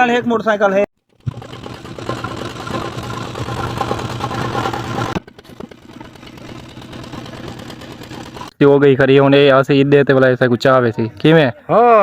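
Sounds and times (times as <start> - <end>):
small boat engine running: 1.1 - 8.5.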